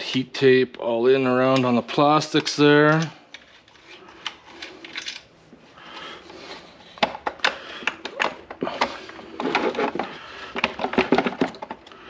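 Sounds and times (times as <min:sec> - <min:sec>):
rubbing and rustling: 0:08.8 - 0:11.8.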